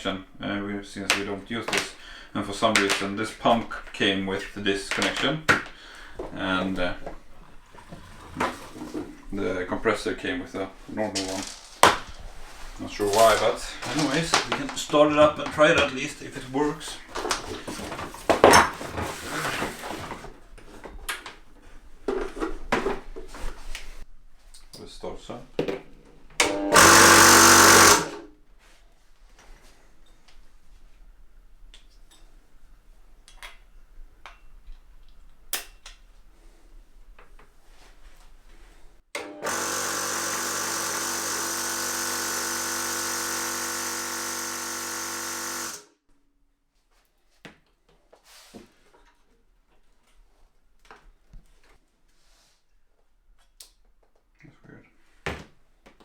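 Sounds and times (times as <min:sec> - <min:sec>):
air compressor pump running: 0:26.4 - 0:28.3, 0:39.2 - 0:45.9.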